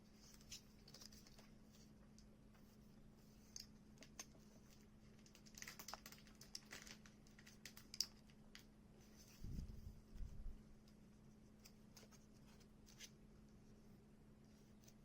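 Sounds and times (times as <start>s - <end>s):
faint low hum: 0.0s - 15.0s
small plastic parts clicking: 5.2s - 8.7s.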